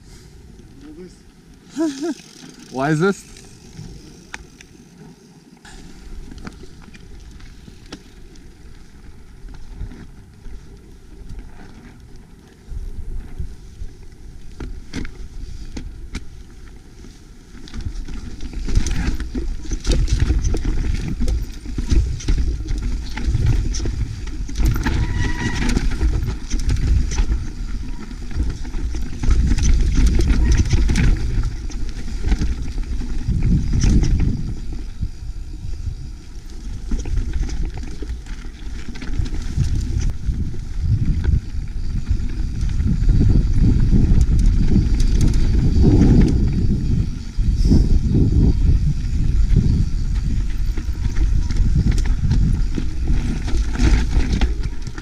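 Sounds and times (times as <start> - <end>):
bike rattling and clattering: 1.7 - 55.0
wind noise on microphone: 12.6 - 55.0.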